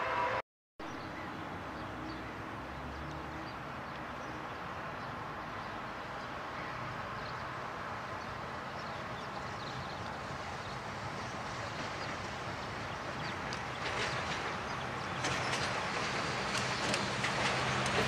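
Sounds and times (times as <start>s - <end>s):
distant electric train rumble: 0.0s - 0.4s, 7.5s - 18.0s.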